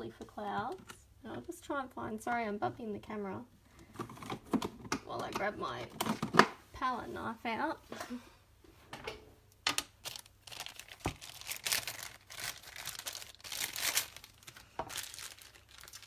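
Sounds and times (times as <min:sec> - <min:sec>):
rustling and crinkling: 0:09.8 - 0:16.0.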